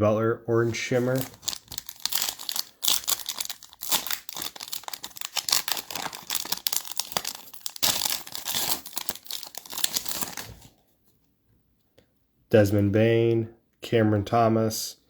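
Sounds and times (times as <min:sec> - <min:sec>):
plastic wrapper crinkling and tearing: 0:00.6 - 0:10.8.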